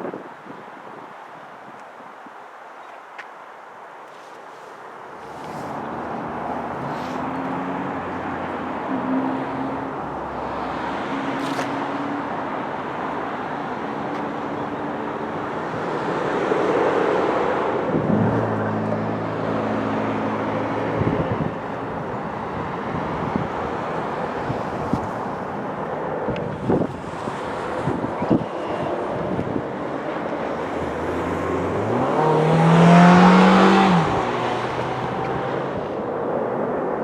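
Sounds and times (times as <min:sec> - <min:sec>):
steady rushing noise: 0:15.0 - 0:37.0.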